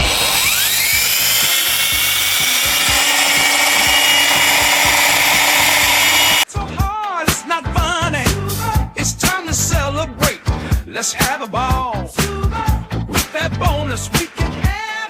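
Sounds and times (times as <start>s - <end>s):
drywall sander whine and hiss: 0.0s - 6.5s.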